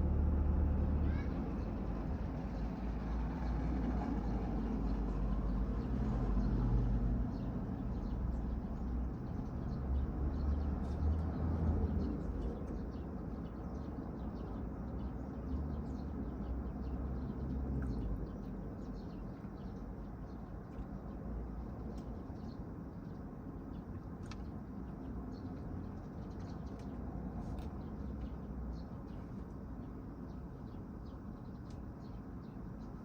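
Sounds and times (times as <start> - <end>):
car engine rumbling: 0.0 - 2.8
faint bird chirps: 0.7 - 1.8.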